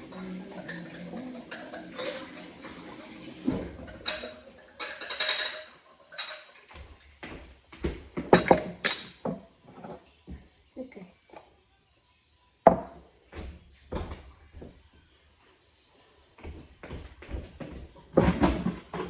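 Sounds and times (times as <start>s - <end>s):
knocks in a kitchen: 12.7s - 14.7s.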